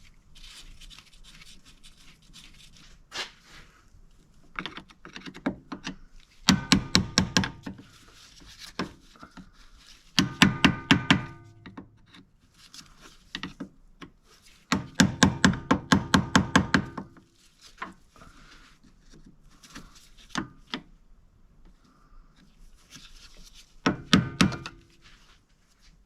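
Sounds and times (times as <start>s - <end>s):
single knocks on metal: 6.5s - 7.7s, 10.2s - 11.8s.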